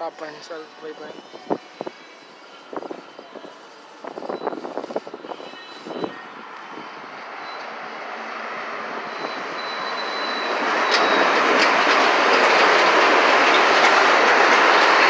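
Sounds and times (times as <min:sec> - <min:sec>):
commuter train passing: 0:00.0 - 0:15.0
wheels clicking over rail joints: 0:09.8 - 0:15.0.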